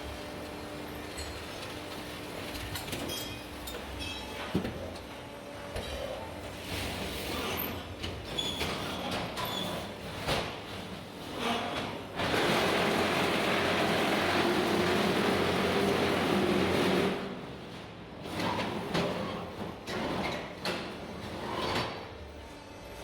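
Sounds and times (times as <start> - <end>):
block making machine running: 12.2 - 17.5.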